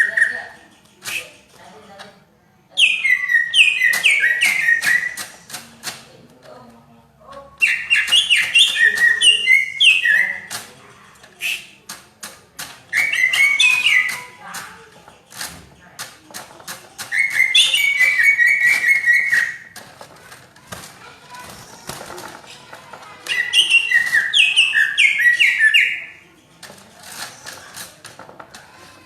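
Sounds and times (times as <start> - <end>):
bird chattering song: 0.0 - 1.5, 2.7 - 5.6, 7.5 - 12.0, 12.8 - 19.8, 21.0 - 29.0
short clicks: 10.4 - 25.8.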